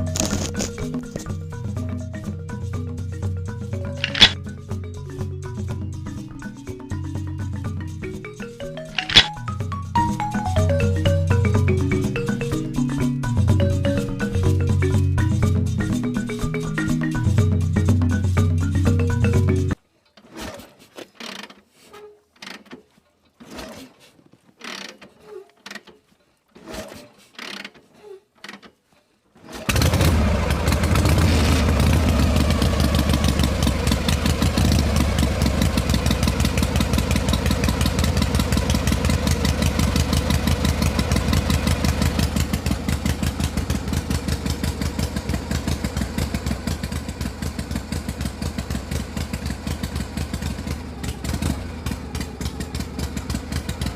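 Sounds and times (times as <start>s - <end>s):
small engine running: 0.0s - 1.3s, 3.8s - 4.5s, 8.7s - 16.6s, 29.5s - 53.9s.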